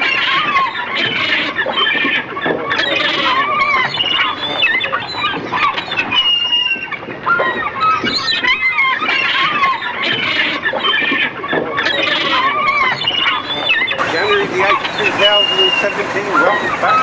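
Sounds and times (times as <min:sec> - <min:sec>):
birds squawking: 0:12.8 - 0:17.0.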